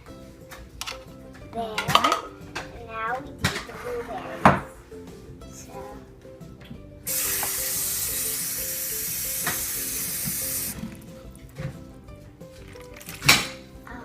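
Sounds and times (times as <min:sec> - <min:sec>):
kitchen tap running: 0:07.1 - 0:11.1.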